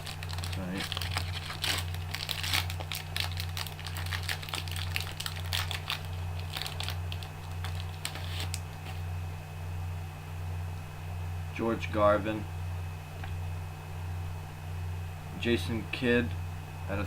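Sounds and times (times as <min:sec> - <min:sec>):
steady low hum: 0:00.0 - 0:17.0
trading cards being flipped: 0:07.5 - 0:09.1.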